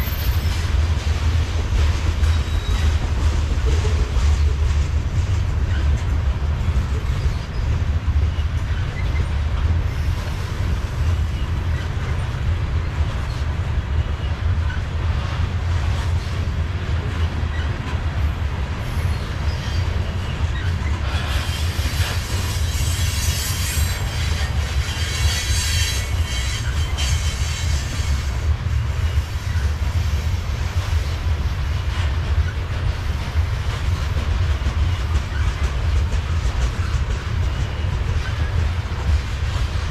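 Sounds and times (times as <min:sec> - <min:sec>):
freight cars rumbling on rails: 0:00.0 - 0:39.9.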